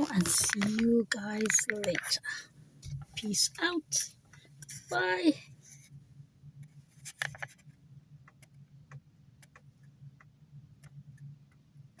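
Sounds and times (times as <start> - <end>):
light clicks and taps: 0.0 - 2.2
faint low hum: 0.0 - 12.0.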